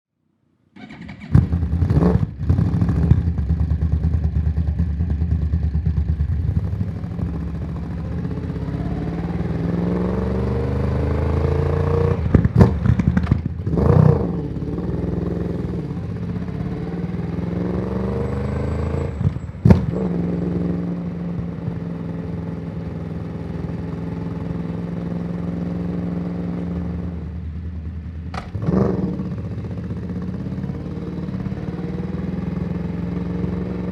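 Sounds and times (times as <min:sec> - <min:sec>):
motorcycle engine throttle blips: 0:00.8 - 0:10.5.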